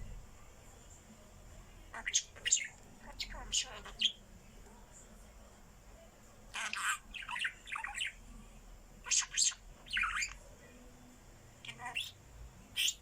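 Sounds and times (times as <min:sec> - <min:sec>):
bird squawking: 0:01.9 - 0:04.2, 0:06.5 - 0:08.2, 0:11.6 - 0:12.2, 0:12.8 - 0:13.0.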